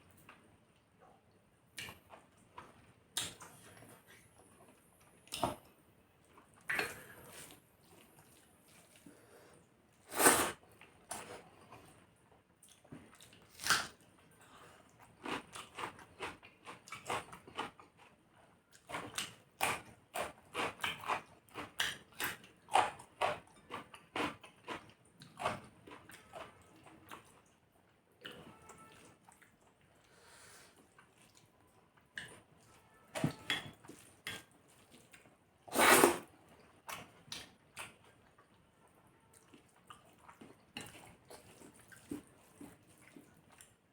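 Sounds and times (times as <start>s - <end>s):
person chewing and smacking: 15.0s - 18.1s, 18.7s - 27.6s, 30.8s - 35.4s, 36.6s - 43.8s.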